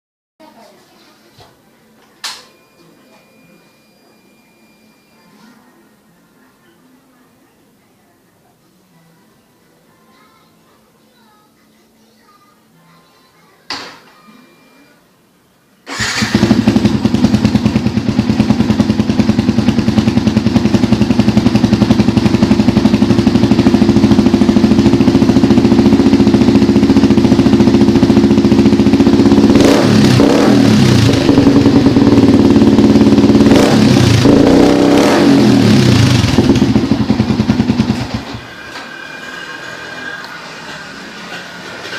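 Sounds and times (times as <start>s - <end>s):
motorcycle engine idling and revving: 15.9s - 41.3s.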